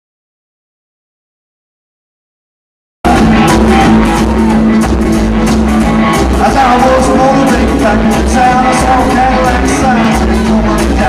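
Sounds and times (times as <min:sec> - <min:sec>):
rockabilly band playing live: 0:03.1 - 0:11.0.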